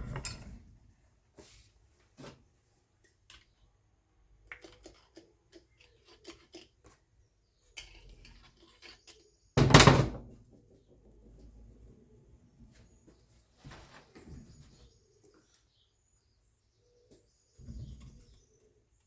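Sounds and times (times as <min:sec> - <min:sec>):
tools and metal parts clinking: 0:00.0 - 0:00.6.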